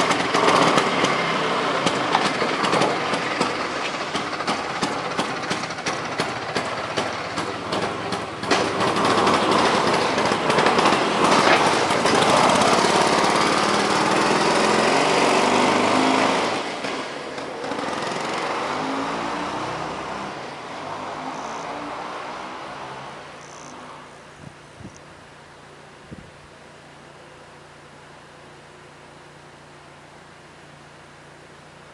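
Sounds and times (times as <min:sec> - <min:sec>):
scooter engine revving: 0:00.0 - 0:24.2.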